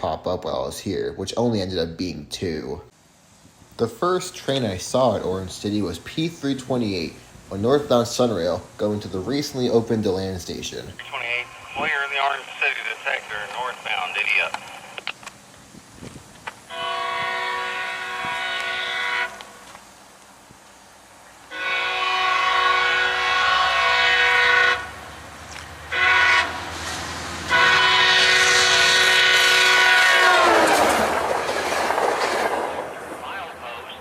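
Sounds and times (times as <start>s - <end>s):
train wheels and cars rushing past: 16.6s - 34.0s
train horn blasts: 16.7s - 19.7s, 21.5s - 25.1s, 25.9s - 26.8s, 27.5s - 31.1s.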